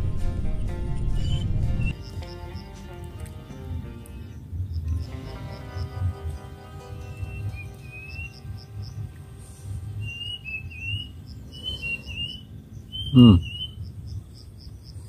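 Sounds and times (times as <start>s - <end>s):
low rumble: 0.0s - 7.9s
birds whistling and chirping: 1.0s - 2.7s, 4.8s - 9.1s, 9.9s - 14.0s.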